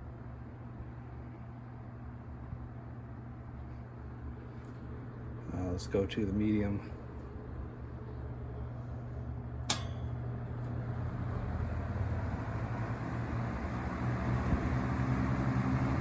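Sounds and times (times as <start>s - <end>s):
fan motor hum and air rush: 0.0s - 16.0s
fan switch click: 9.6s - 10.8s.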